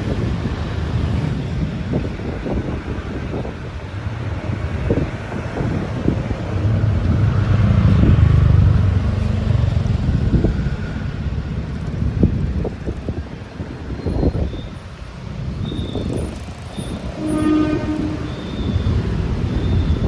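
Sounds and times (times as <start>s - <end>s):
vehicle passing rumble: 0.0s - 13.3s.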